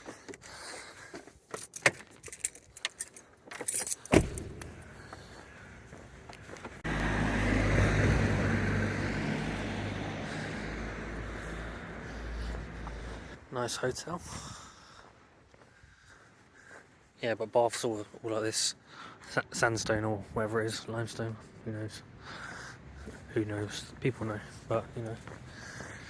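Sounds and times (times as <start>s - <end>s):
keys jangling: 1.5s - 4.8s
car engine running: 6.6s - 13.4s.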